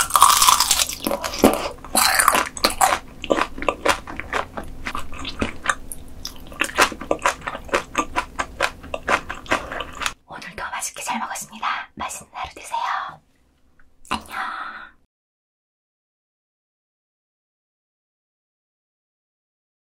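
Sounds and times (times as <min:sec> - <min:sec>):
food crunching: 0:00.0 - 0:10.2
person biting and chewing food: 0:00.0 - 0:10.2.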